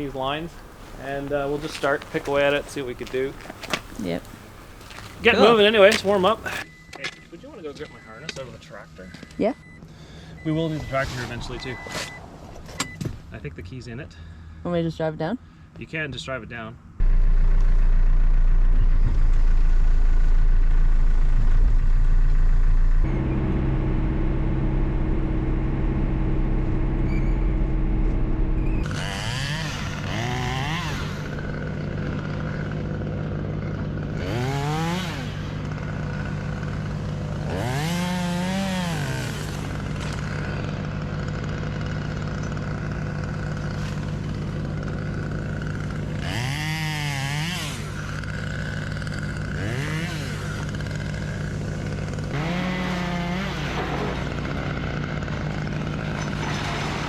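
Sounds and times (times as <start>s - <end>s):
chainsaw revving: 0.0s - 6.7s, 28.2s - 57.0s
engine drone: 16.8s - 57.0s.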